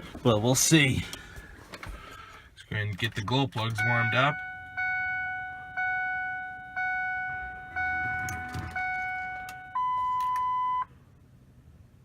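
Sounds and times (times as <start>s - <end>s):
dashboard warning chime dinging: 3.6s - 10.9s
steady higher beep: 3.8s - 10.9s.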